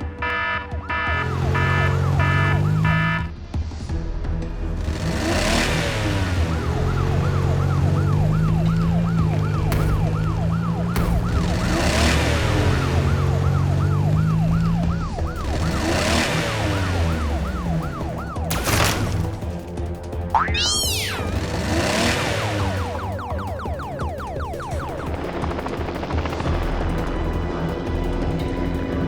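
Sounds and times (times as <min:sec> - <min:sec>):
warbling siren-like tone: 0:06.0 - 0:19.2, 0:20.4 - 0:26.0.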